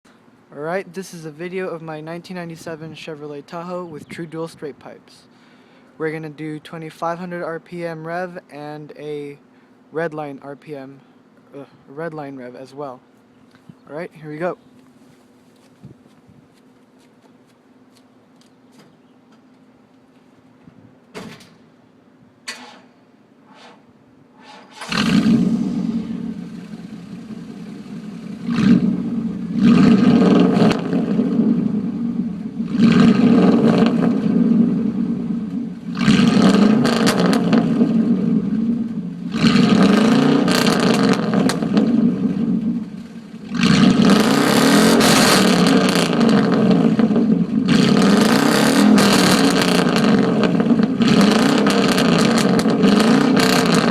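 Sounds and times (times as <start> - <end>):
engine starting and revving: 24.4 - 27.8, 28.4 - 31.7, 32.7 - 34.8, 35.9 - 38.6, 39.3 - 42.7, 43.5 - 53.9.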